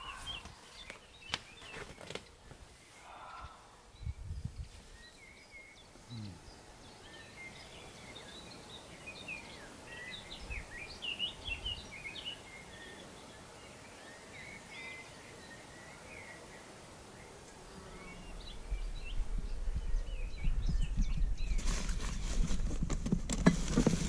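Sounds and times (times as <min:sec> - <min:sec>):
birds chirping and whistling: 0:18.2 - 0:22.5.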